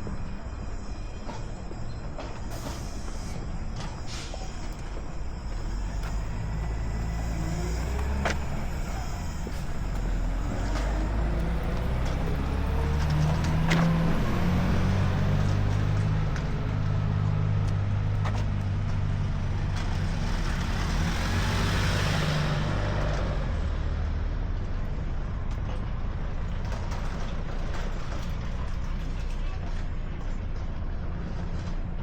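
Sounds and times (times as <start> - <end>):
heavy vehicle engine humming: 0.0 - 32.0
rushing hiss of traffic: 2.4 - 11.2.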